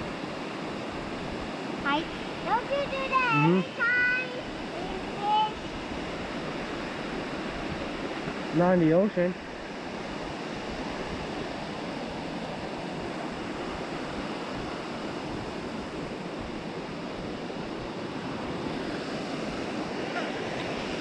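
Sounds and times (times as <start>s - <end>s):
waterfall rushing water: 0.0s - 16.4s.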